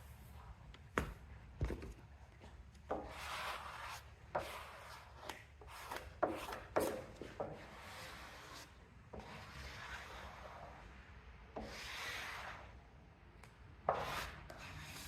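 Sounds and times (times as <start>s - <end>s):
rubbing strokes on a decal: 2.9s - 10.9s, 11.6s - 12.8s, 13.9s - 15.0s.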